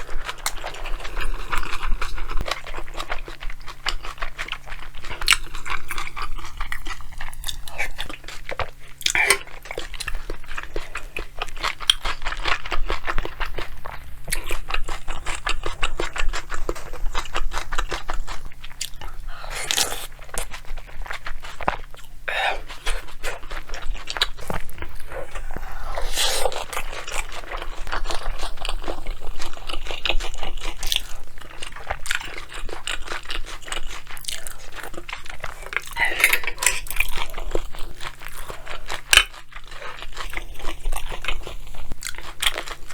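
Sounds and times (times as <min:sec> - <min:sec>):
close chewing and crunching: 0:00.0 - 0:42.9.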